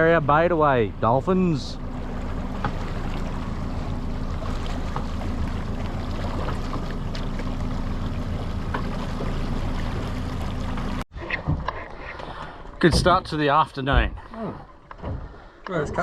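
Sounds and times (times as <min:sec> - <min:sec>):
outboard motor running: 0:00.0 - 0:16.0
rush of wind and water: 0:01.4 - 0:13.2.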